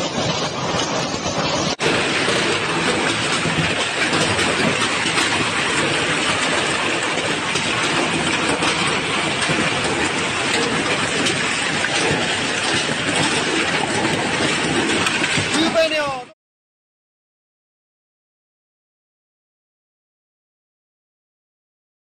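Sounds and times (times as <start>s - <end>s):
heavy rain: 0.0s - 16.4s.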